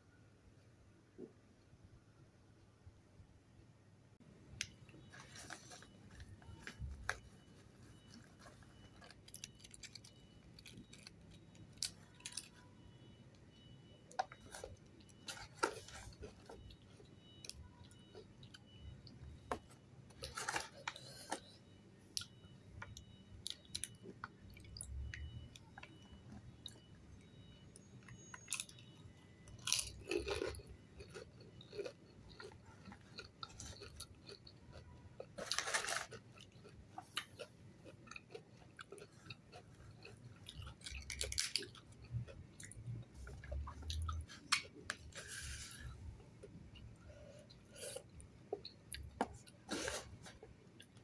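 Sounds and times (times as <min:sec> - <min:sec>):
crisp shells crunching: 0:35.3 - 0:36.2.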